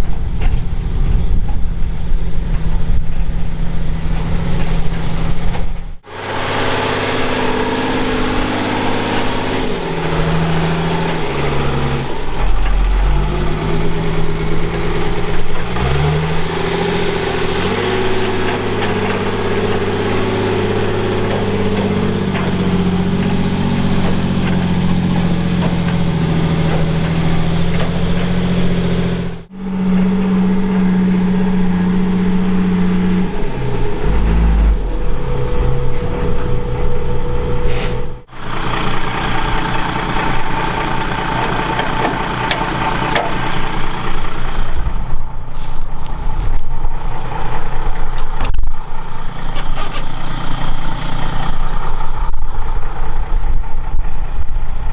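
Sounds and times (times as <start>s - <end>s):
off-road vehicle engine revving: 0.0s - 54.9s.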